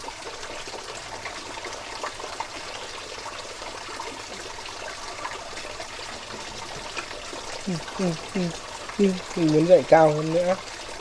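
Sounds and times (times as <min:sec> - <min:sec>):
water running and trickling: 0:00.0 - 0:11.0.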